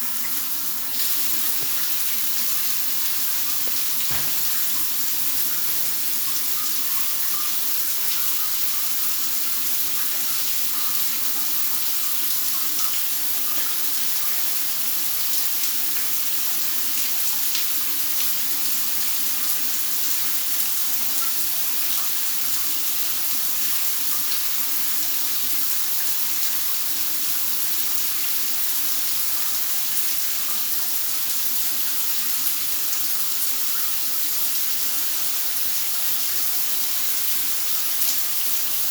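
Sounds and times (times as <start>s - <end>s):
steady rain hiss: 0.2s - 6.8s.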